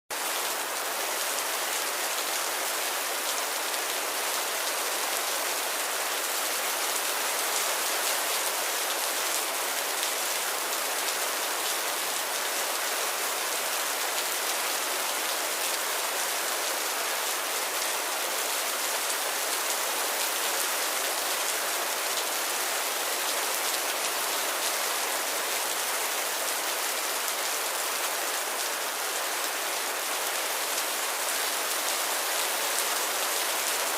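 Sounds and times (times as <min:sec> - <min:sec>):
light rain falling: 0:00.1 - 0:33.9.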